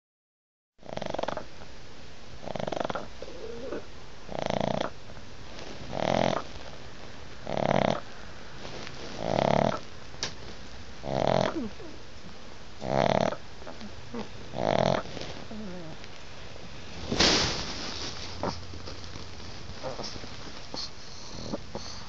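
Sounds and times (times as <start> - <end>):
dog snoring loudly: 0.8 - 1.5, 2.4 - 5.0, 5.8 - 6.6, 7.4 - 8.1, 9.2 - 9.8, 11.0 - 12.0, 12.8 - 16.0, 19.8 - 22.0.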